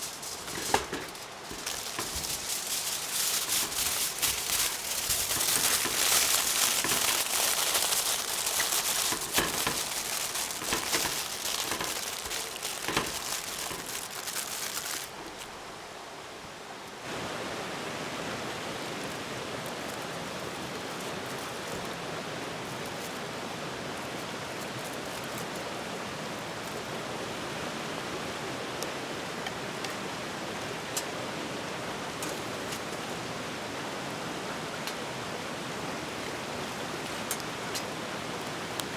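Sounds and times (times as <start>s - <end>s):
crackling with sharp pops: 0.0s - 15.6s
steady rushing hiss: 0.0s - 38.9s.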